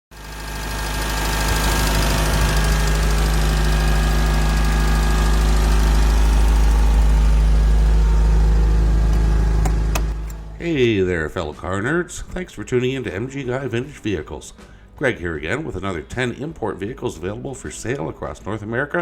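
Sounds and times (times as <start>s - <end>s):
car engine idling: 0.2s - 11.0s.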